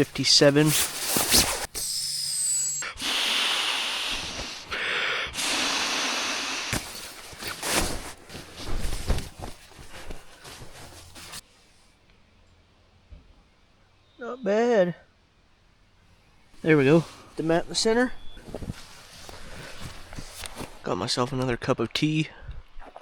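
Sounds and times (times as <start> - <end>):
nylon scraping and rustling: 0.0 - 1.7, 6.7 - 11.4, 16.6 - 20.9
air rushing into sleeping pad: 0.0 - 11.4, 16.6 - 20.8.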